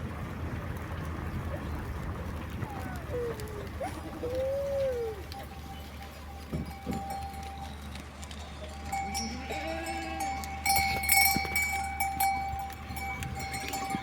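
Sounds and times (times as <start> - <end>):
bells clinking: 5.1 - 14.0
livestock bleating: 8.9 - 12.1.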